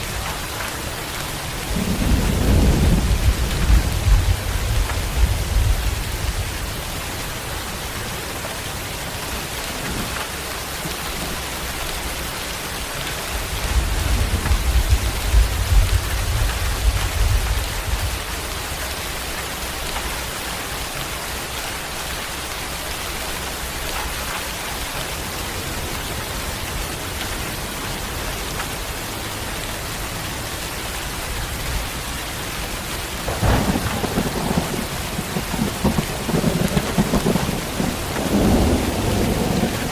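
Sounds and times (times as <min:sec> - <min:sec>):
rolling thunder: 0:00.0 - 0:07.0, 0:13.3 - 0:18.3, 0:33.2 - 0:39.9
steady rain: 0:00.0 - 0:39.9.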